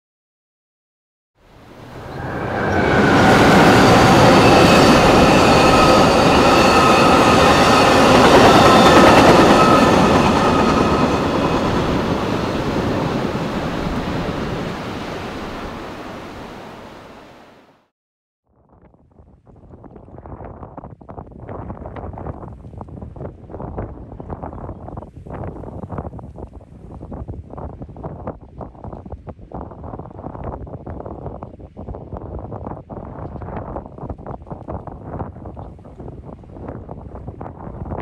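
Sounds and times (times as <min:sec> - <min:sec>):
faint high squealing: 0:01.9 - 0:12.7
train wheels rushing on rails: 0:01.9 - 0:16.8.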